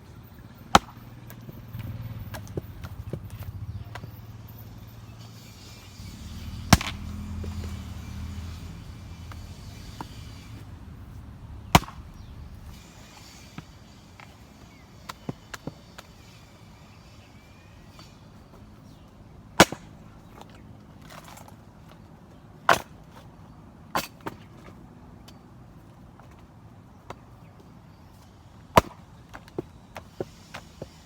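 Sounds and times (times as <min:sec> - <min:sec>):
axe striking wet wood: 0:00.7 - 0:01.0, 0:06.6 - 0:07.7, 0:11.6 - 0:12.3.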